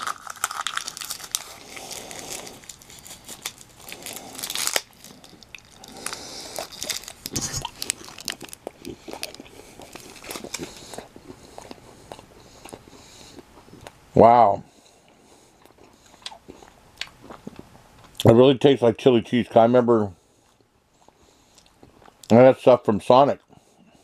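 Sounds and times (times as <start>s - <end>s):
plastic wrapper crinkling: 0.0s - 10.9s
biting and chewing: 0.0s - 14.0s, 14.8s - 18.3s.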